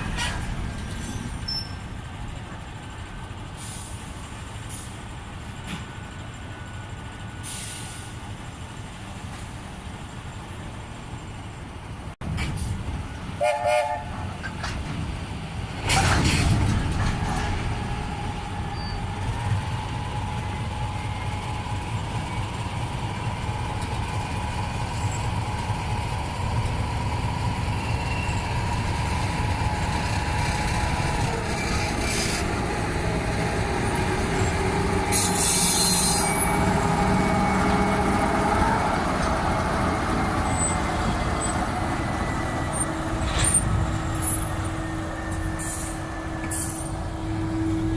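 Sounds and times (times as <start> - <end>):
locomotive engine rumble: 0.0 - 47.9
hissing air burst: 35.1 - 36.2.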